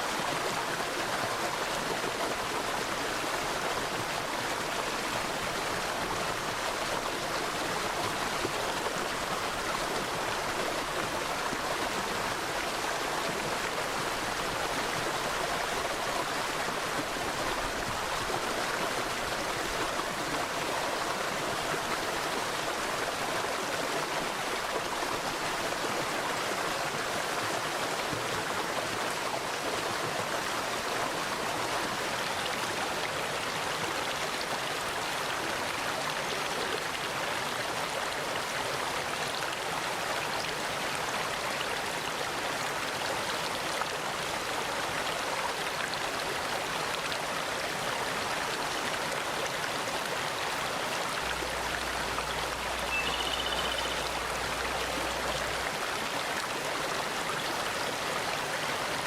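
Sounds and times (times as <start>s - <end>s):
stream rushing over rocks: 0.0s - 59.0s
bird chirp: 52.8s - 54.3s.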